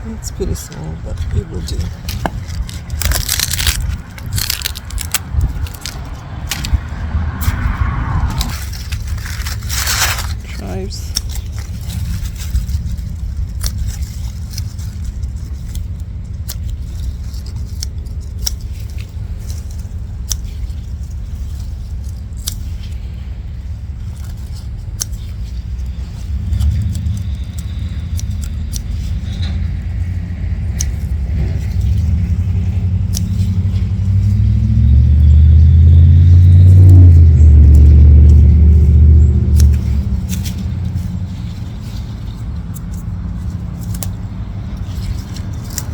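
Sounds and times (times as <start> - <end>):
vehicle passing close: 0.0 - 15.5, 25.8 - 45.9
plants being cut and rustled: 0.0 - 45.9
road traffic rumble: 0.0 - 45.9.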